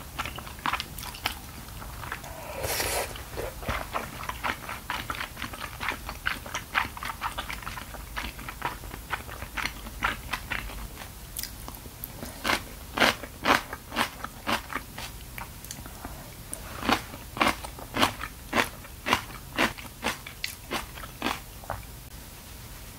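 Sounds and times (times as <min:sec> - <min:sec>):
wet mouth chewing clicks: 0:11.4 - 0:12.6.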